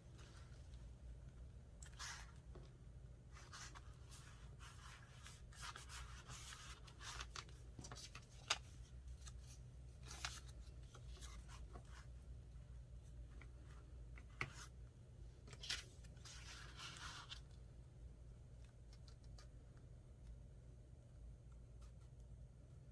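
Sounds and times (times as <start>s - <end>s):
paper rustling: 3.3s - 12.1s.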